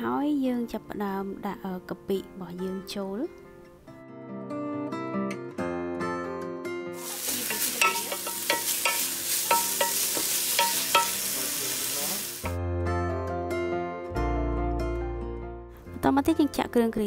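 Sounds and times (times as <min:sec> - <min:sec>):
paste sizzling in hot oil: 0:07.0 - 0:12.6.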